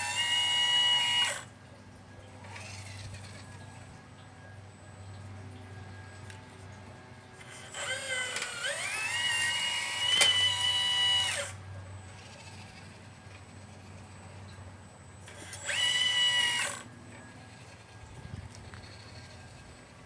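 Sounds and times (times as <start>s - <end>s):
electric motor whining: 0.0s - 1.6s, 2.4s - 3.9s, 7.4s - 14.3s, 15.2s - 20.0s.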